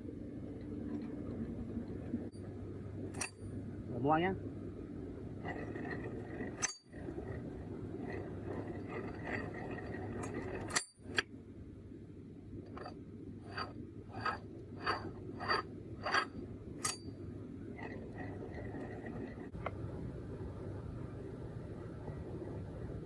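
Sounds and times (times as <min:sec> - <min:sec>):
steady low hum: 0:00.0 - 0:23.0
light metallic clinks: 0:03.1 - 0:03.5.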